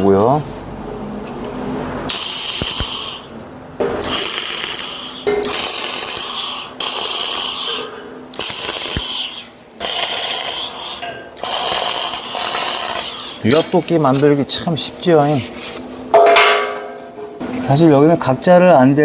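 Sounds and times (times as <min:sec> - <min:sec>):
arc welding crackling and hissing: 0:02.1 - 0:03.4, 0:04.0 - 0:15.9.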